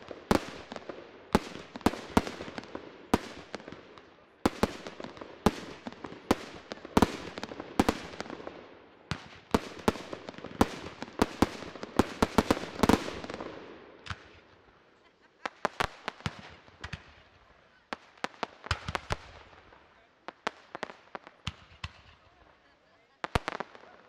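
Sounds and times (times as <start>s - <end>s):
fireworks bangs: 0.0s - 14.6s, 15.4s - 24.0s.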